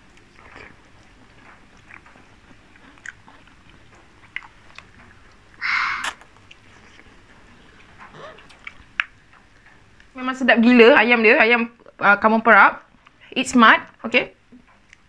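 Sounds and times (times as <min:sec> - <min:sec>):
person chewing and biting food: 0:00.0 - 0:09.2
wet mouth clicks: 0:05.6 - 0:07.1, 0:08.2 - 0:09.2.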